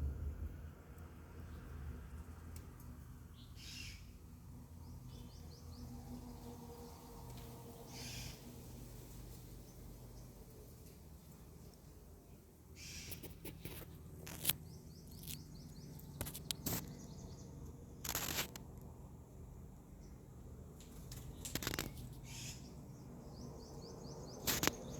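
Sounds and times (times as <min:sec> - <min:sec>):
rustling or scraping noises: 0:12.8 - 0:17.2, 0:18.0 - 0:18.8, 0:20.8 - 0:22.6, 0:24.4 - 0:24.9
birds chirping: 0:12.8 - 0:17.8, 0:21.1 - 0:24.9.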